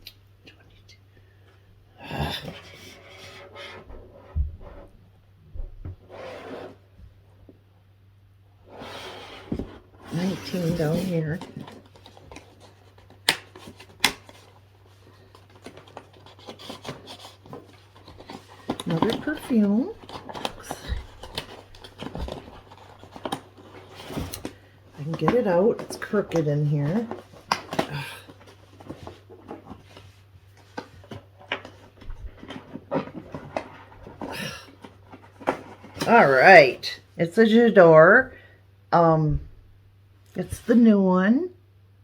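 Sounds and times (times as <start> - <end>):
cardboard scratching and tapping: 15.3 - 30.0.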